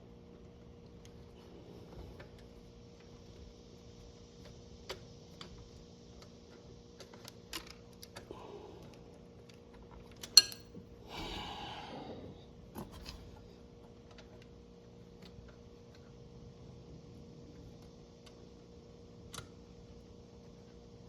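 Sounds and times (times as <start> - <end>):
metal parts clicking and tapping: 10.0 - 10.8.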